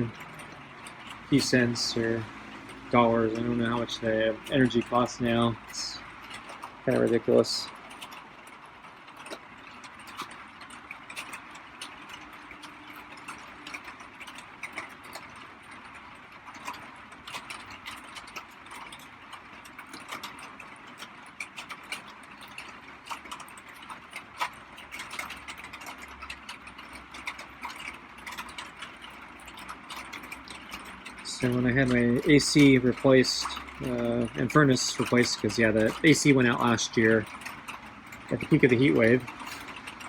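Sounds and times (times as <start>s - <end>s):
sharp ticks: 0.0s - 40.0s
light rain hissing: 30.6s - 40.0s.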